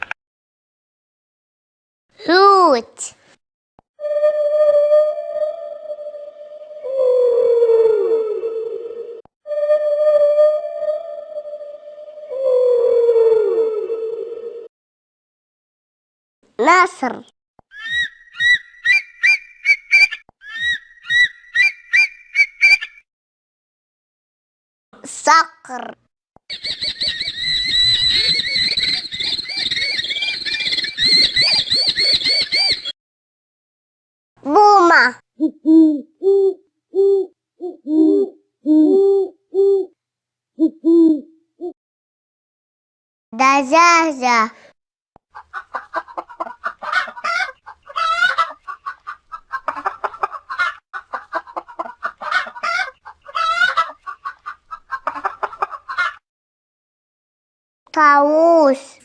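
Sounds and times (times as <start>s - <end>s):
falcon calling shrilly: 17.7s - 23.0s, 26.5s - 32.9s
hen squawking: 17.7s - 23.0s, 26.5s - 32.9s, 45.6s - 50.8s, 51.4s - 56.2s
hen clucking: 26.5s - 32.9s, 45.4s - 56.2s.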